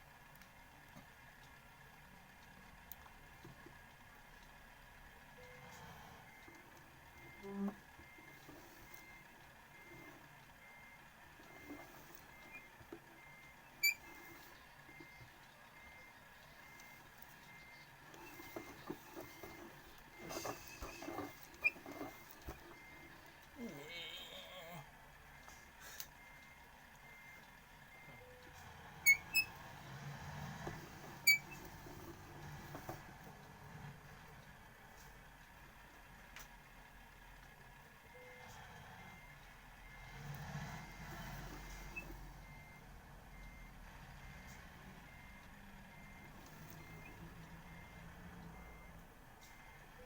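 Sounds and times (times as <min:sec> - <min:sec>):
faint low vehicle hum: 0:00.0 - 0:50.0
car reversing beeper: 0:05.4 - 0:24.7, 0:25.3 - 0:33.0, 0:38.1 - 0:50.0
short electronic beeps: 0:12.3 - 0:22.2.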